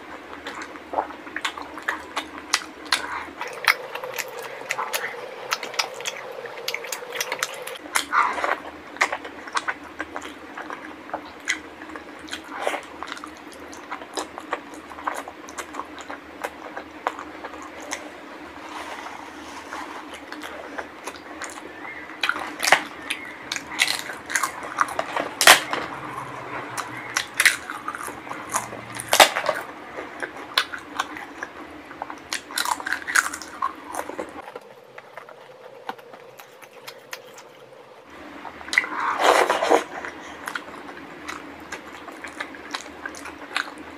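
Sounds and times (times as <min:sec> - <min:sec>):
wet chewing sounds: 0:00.0 - 0:43.9.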